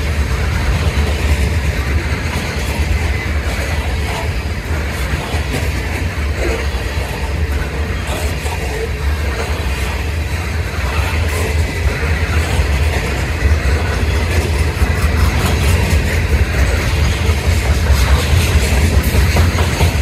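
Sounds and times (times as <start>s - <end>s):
freight train wheels rumbling: 0.0s - 20.0s
rapid clicking of wheels: 0.0s - 20.0s.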